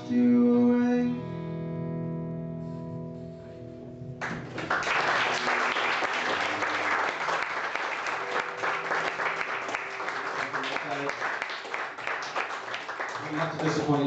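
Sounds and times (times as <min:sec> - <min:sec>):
audience applause: 0:04.2 - 0:14.0.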